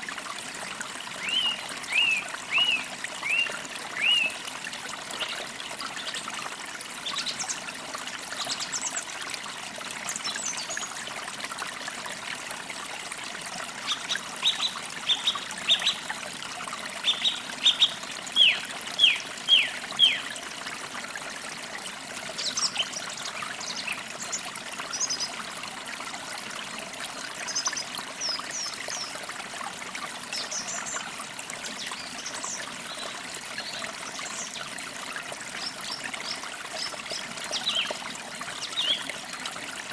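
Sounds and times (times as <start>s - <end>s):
stream trickling: 0.0s - 39.9s
songbirds calling: 1.2s - 4.4s, 13.8s - 16.1s, 17.0s - 20.3s, 35.6s - 38.0s, 38.6s - 39.2s.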